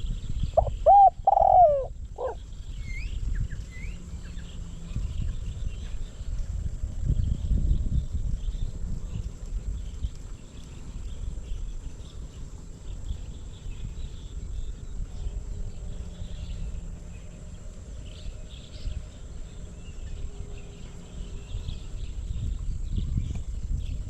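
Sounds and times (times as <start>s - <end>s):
dove cooing: 0.6s - 2.4s.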